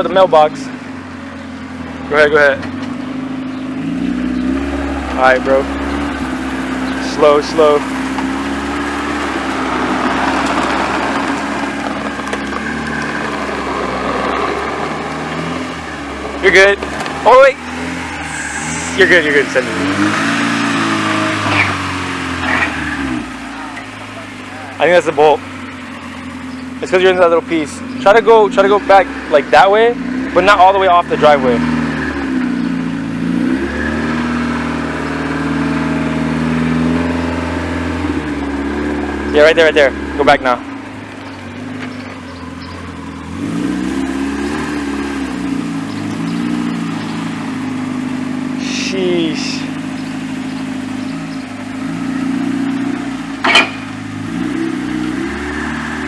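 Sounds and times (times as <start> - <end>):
bumper scraping on driveway: 0.0 - 56.0
car engine idling: 0.0 - 56.0.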